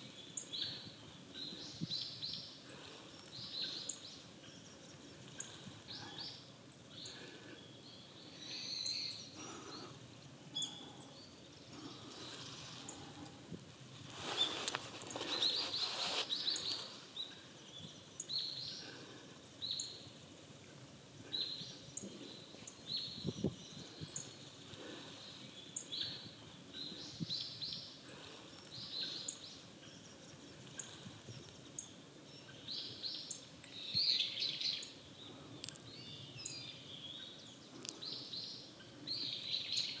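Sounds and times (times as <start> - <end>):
brief rustle: 14.1 - 17.0.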